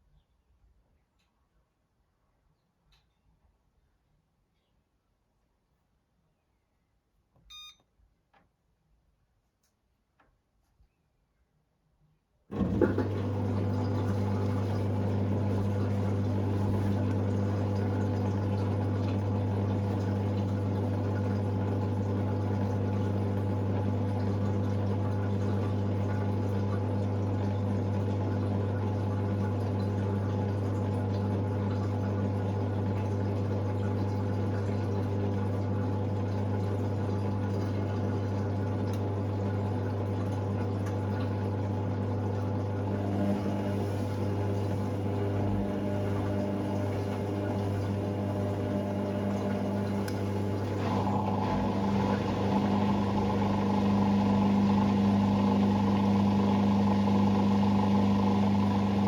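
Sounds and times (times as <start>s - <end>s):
washing machine drain pump humming: 12.5s - 59.0s.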